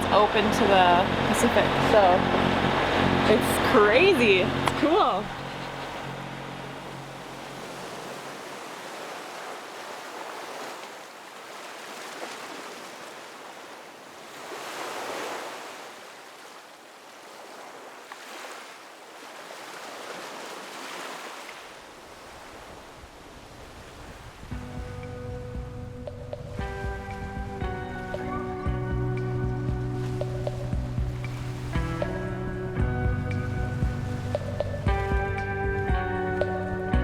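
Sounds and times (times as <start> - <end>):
sea water washing past hull: 0.0 - 24.7, 29.5 - 32.4.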